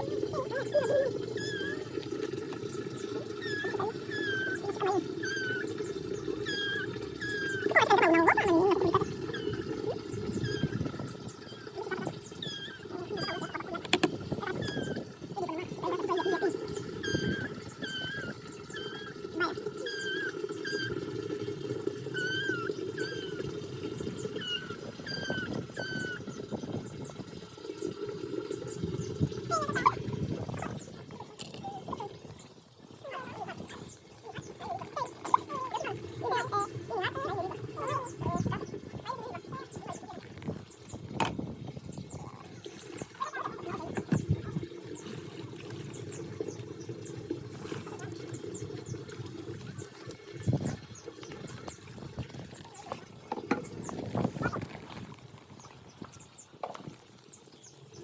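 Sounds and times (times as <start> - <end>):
chickens calling: 28.3 - 30.9.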